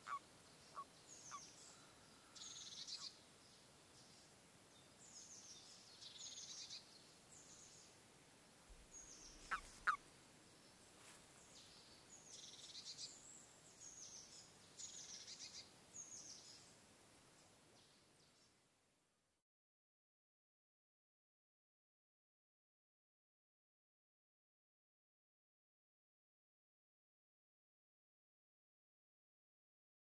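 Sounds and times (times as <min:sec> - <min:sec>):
songbirds singing: 0:00.0 - 0:08.0, 0:08.8 - 0:18.6.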